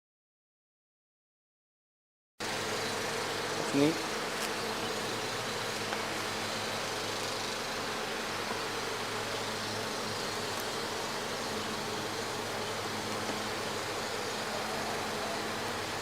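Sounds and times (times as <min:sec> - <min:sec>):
honeybees buzzing: 0:02.4 - 0:16.0.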